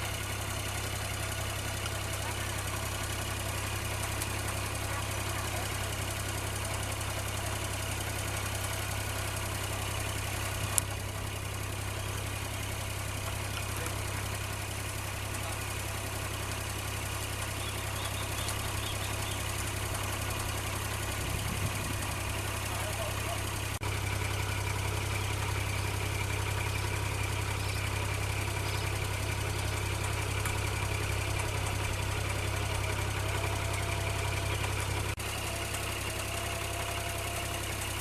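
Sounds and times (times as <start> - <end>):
diesel engine idling: 0.0 - 38.0.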